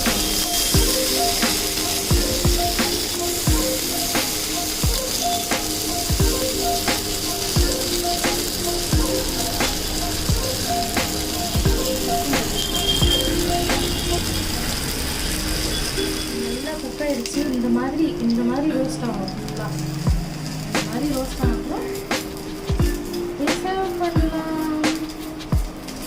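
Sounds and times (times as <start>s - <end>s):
background music with beat: 0.0s - 26.0s
skewers sizzling on hot pan: 0.0s - 26.0s.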